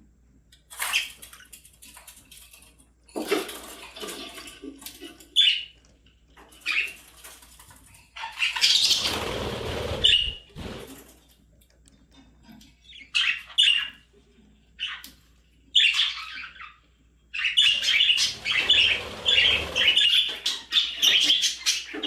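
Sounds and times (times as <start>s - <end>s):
budgerigars chirping: 8.2s - 10.5s, 12.9s - 14.0s, 15.8s - 22.0s
wings flapping and rustling: 8.6s - 11.3s, 17.8s - 21.4s.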